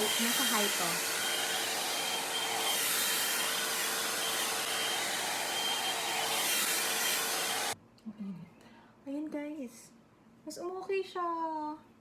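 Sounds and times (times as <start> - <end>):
hair dryer blowing air: 0.0 - 7.8
motor whine: 0.0 - 7.8.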